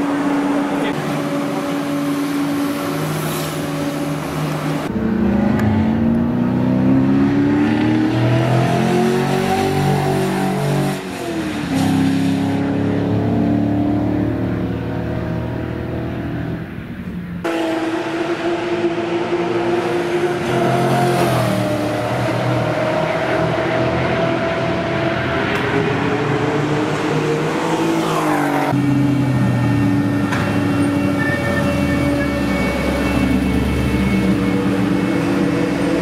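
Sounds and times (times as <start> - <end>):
car engine idling and accelerating: 0.0 - 36.0.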